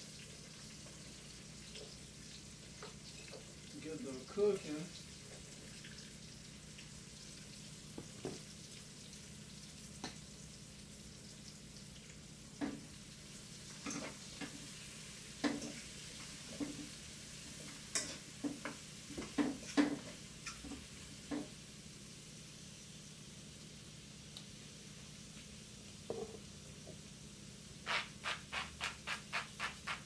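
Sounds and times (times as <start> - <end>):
vegetables sizzling in a pot: 0.0 - 30.0
spoon knocking and scraping pot: 15.4 - 15.8, 17.7 - 21.5, 26.1 - 26.4.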